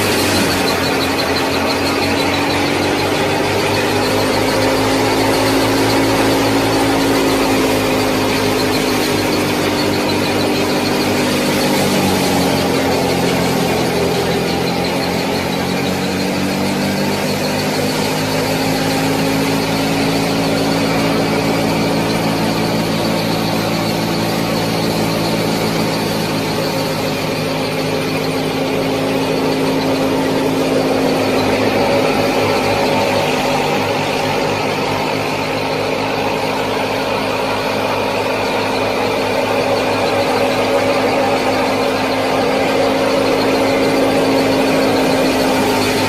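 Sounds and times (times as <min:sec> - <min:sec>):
small motor whining: 0:00.0 - 0:46.0.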